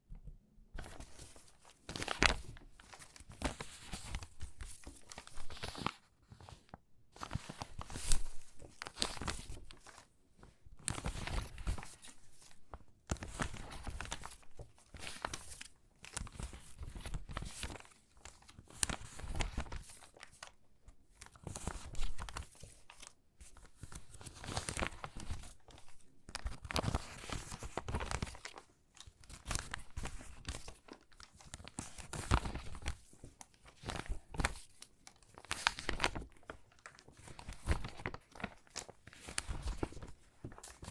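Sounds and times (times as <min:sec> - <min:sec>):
stiff paper rustling and crackling: 0:21.2 - 0:40.9.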